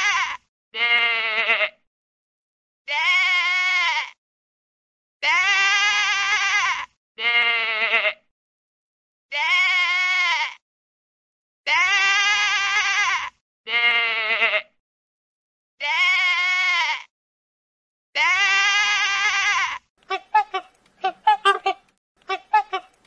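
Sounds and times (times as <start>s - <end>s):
sheep bleating: 0.0s - 1.8s, 2.9s - 4.2s, 5.2s - 8.3s, 9.3s - 10.6s, 11.7s - 14.8s, 15.8s - 17.1s, 18.2s - 22.9s.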